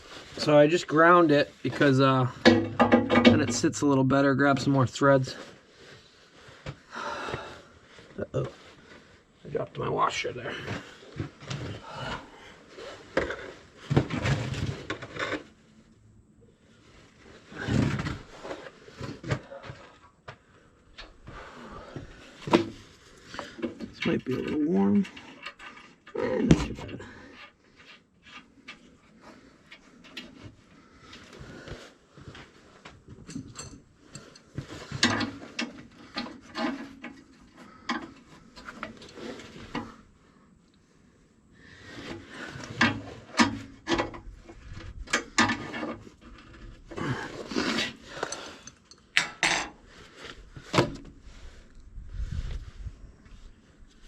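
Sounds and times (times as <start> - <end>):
metal tools clicking and rattling: 33.2 - 35.2, 48.2 - 49.7.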